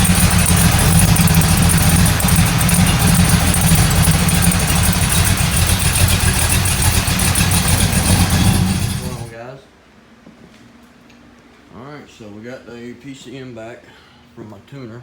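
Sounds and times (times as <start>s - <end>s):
truck engine uneven idle: 0.0s - 9.4s.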